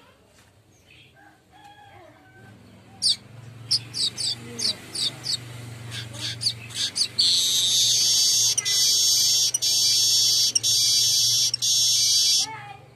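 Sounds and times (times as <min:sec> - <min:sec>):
bird short high chirps: 0:05.0 - 0:12.5
bird buzzy sizzling trill: 0:05.9 - 0:12.5.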